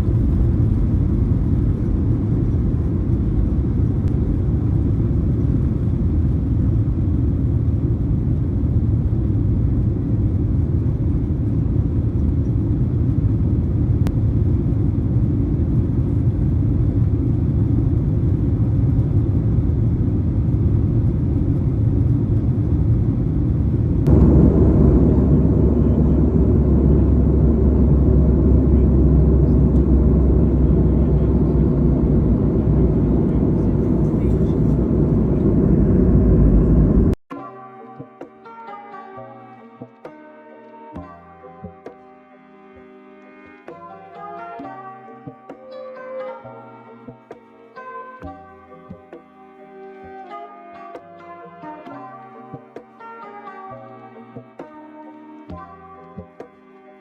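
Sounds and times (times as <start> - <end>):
airliner cabin rumble: 0.0 - 37.2
steady low hum: 0.0 - 37.2.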